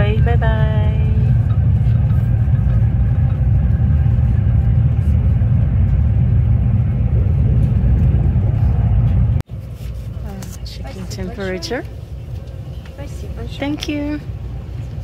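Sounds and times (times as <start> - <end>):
train interior low rumble: 0.0 - 15.0.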